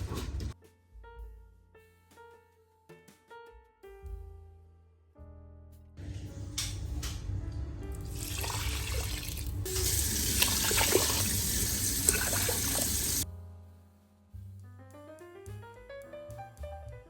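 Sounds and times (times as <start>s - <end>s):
tap water running into sink: 7.9s - 13.2s.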